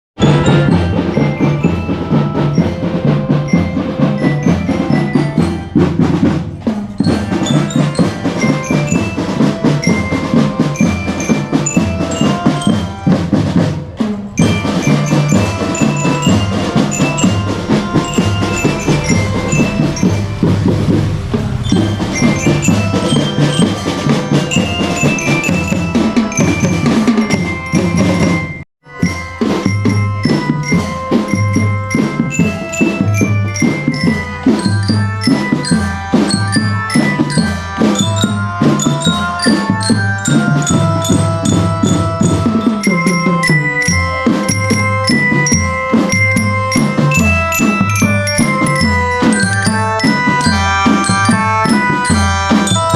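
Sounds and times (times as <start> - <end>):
bass drums: 0.2 - 28.4
snare drums: 0.2 - 52.9
lyra melody: 14.0 - 28.0, 30.0 - 52.9.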